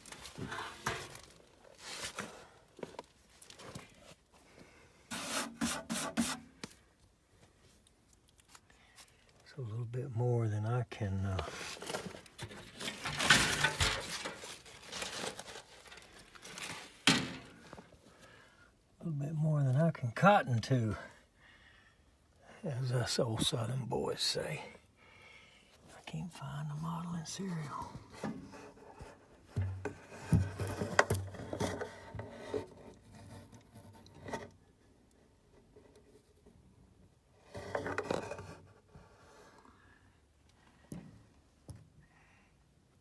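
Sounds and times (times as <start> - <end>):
rustling crinkling handling noise: 0.0 - 4.4, 11.3 - 18.3.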